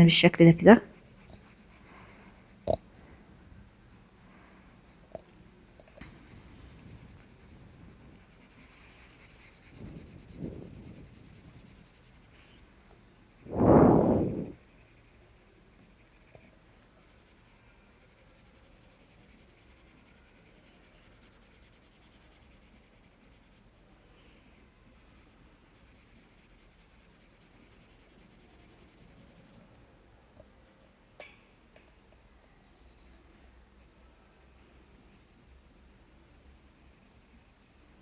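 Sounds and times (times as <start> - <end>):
pencil scratching on paper: 0.7 - 3.0, 6.1 - 23.8, 24.8 - 29.7, 32.6 - 38.0.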